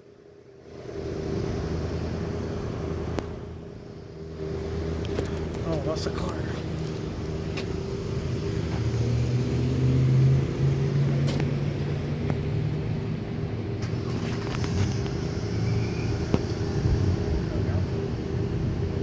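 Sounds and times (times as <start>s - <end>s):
car engine running: 0.2s - 19.0s.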